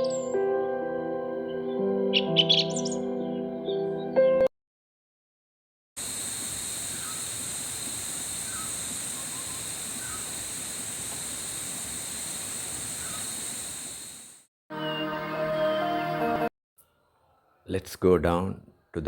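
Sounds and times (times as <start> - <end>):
high drone of insects: 6.0 - 14.5.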